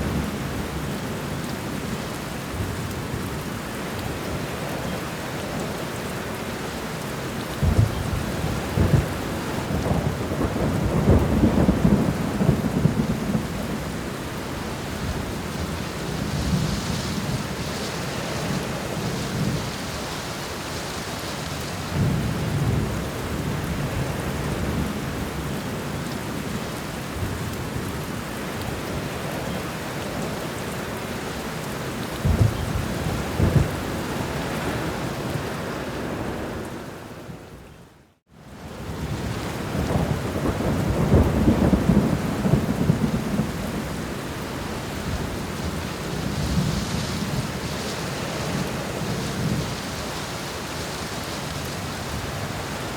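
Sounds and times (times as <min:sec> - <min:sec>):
steady rainfall: 0:00.0 - 0:52.9
thunder rumbling: 0:07.6 - 0:20.2, 0:32.1 - 0:37.5, 0:38.8 - 0:50.9.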